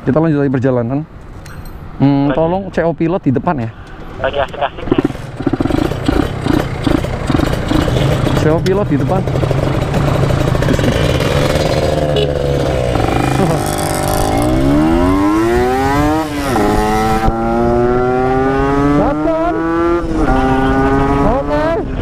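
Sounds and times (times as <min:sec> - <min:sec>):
motorcycle engine revving: 0:04.9 - 0:22.0.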